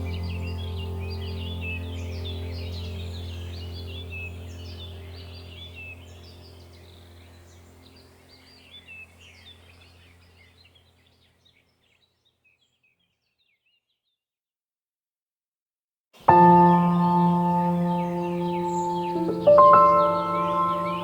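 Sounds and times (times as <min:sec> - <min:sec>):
ambient music drone: 0:00.0 - 0:10.3, 0:16.3 - 0:21.0
small birds chirping: 0:00.0 - 0:14.2, 0:16.2 - 0:21.0.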